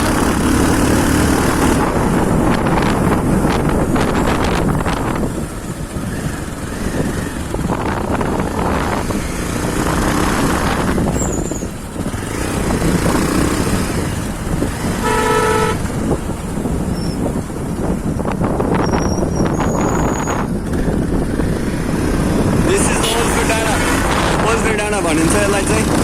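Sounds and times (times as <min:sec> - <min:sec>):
motorcycle running: 0:00.0 - 0:26.0
wind rushing over microphone: 0:00.0 - 0:26.0
horn toot: 0:14.8 - 0:16.0.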